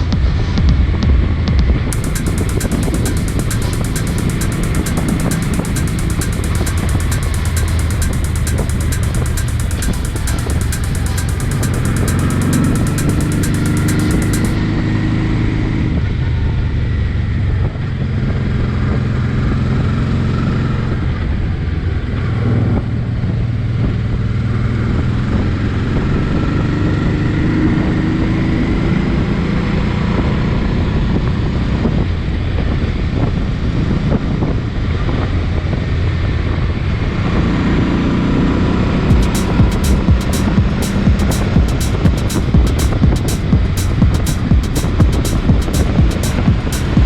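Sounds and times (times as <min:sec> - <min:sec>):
motorcycle engine running: 0:01.9 - 0:14.6, 0:39.1 - 0:47.0.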